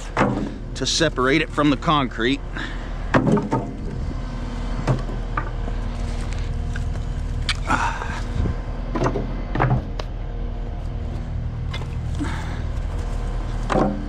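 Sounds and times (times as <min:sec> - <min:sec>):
wood debris knocking and clattering: 0:00.0 - 0:00.6, 0:03.1 - 0:03.8
steady low hum: 0:00.0 - 0:14.0.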